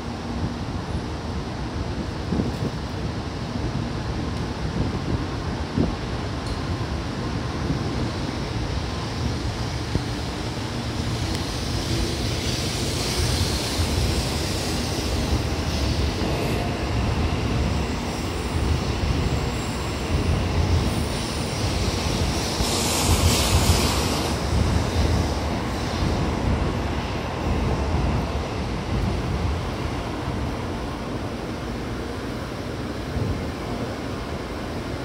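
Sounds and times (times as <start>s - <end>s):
train rumbling: 0.0s - 35.0s
train hissing: 8.0s - 35.0s.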